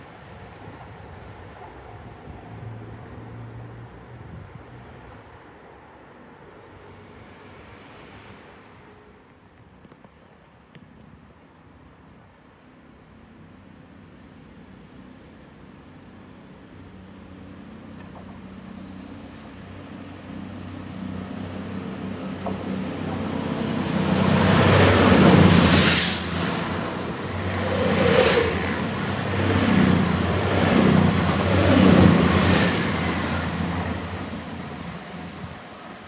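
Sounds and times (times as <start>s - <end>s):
diesel engines humming: 16.7s - 36.0s
train wheels rumbling on rails: 17.2s - 36.0s.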